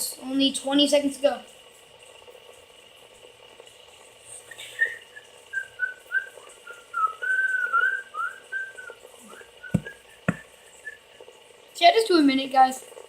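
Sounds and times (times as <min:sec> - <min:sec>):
person whistling: 0:04.5 - 0:11.1.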